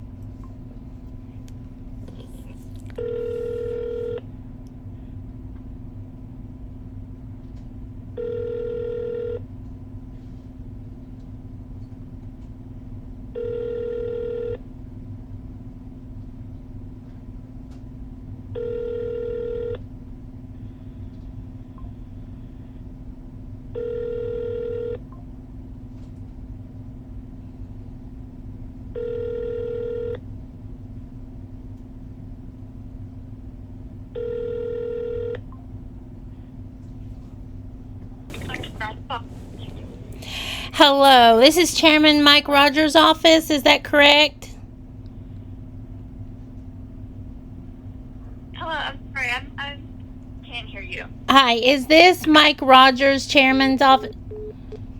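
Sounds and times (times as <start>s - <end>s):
steady low hum: 0.0s - 7.5s, 36.3s - 54.9s
telephone ringback tone: 3.0s - 4.2s, 8.2s - 9.4s, 13.4s - 14.6s, 18.6s - 19.8s, 23.8s - 25.0s, 29.0s - 30.2s, 34.2s - 35.4s, 38.3s - 42.4s.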